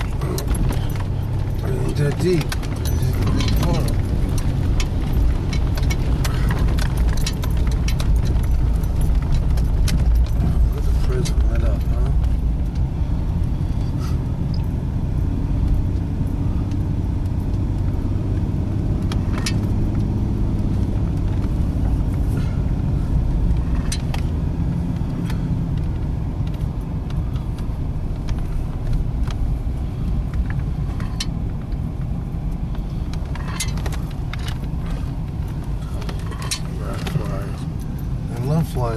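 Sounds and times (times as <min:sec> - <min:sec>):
car cabin engine and tyre rumble: 0:00.0 - 0:38.9
light clicks and rattles: 0:00.0 - 0:38.9.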